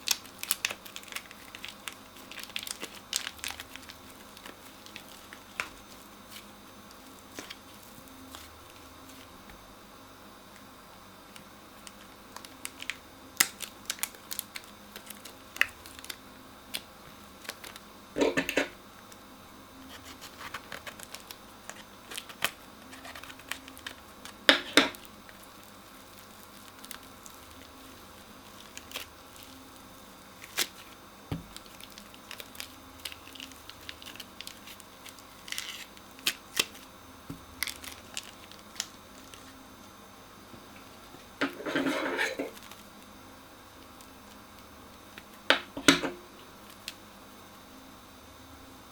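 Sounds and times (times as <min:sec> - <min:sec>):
crunchy slime squeezed: 0:00.0 - 0:09.2, 0:19.9 - 0:39.6
plastic piping bags crinkling: 0:00.0 - 0:09.5, 0:11.2 - 0:19.2, 0:19.8 - 0:39.7, 0:40.8 - 0:45.7, 0:46.5 - 0:47.0.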